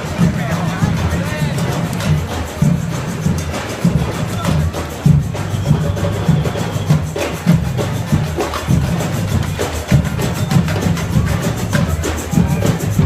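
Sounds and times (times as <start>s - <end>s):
parade drums marching beat: 0.0s - 13.0s.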